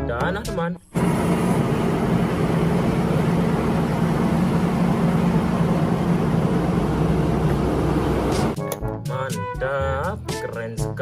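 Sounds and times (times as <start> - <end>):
heavy engine rumble: 1.0 - 8.6.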